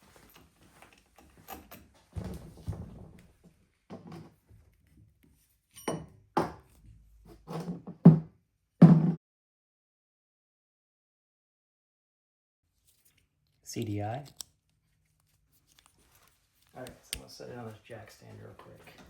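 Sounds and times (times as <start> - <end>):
tools knocking on workbench: 5.9 - 6.7, 7.7 - 9.2.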